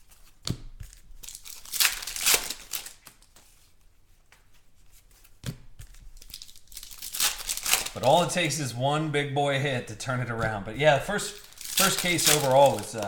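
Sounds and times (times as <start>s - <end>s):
foil wrappers tearing and crinkling: 0.9s - 3.4s, 5.9s - 8.6s, 10.8s - 13.0s.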